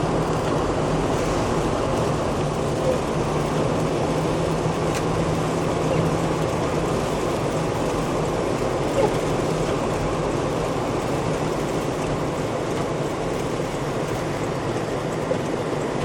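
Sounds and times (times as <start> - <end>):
low engine hum: 0.0 - 16.0
road and tyre noise: 0.0 - 16.0.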